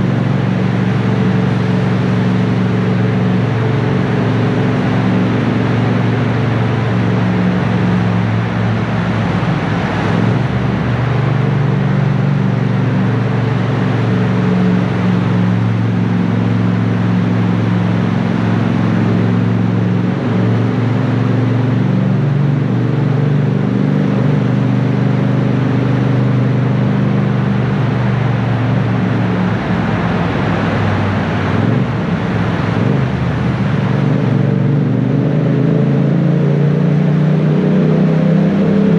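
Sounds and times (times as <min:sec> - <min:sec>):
motorcycle engine cruising: 0:00.0 - 0:38.9
wind and wet-road hiss: 0:26.9 - 0:34.7.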